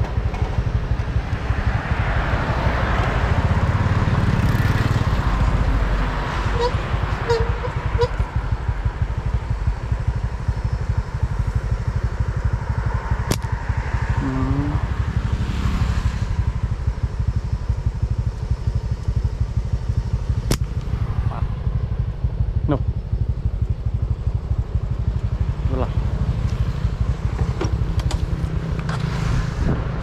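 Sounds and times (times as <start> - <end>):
small motorcycle engine running: 0.0 - 29.3
sharp clicks: 13.3 - 13.6, 20.4 - 20.9.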